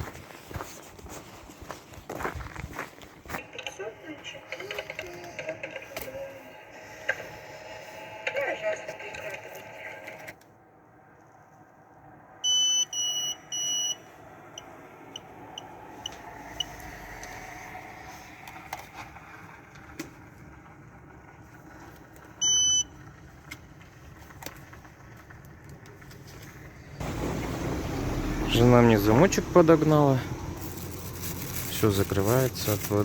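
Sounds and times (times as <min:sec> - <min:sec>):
vehicle hum: 0:12.0 - 0:33.0
short faint beeps: 0:12.4 - 0:14.0, 0:22.4 - 0:22.9.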